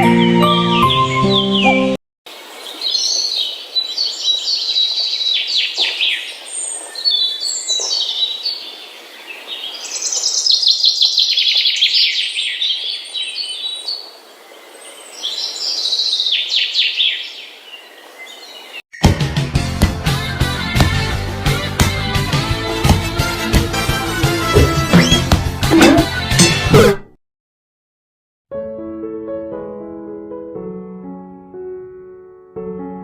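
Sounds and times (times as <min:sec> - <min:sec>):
music: 0:00.0 - 0:02.0, 0:19.0 - 0:27.1, 0:28.5 - 0:33.0
bird chirps and trills: 0:24.9 - 0:25.3.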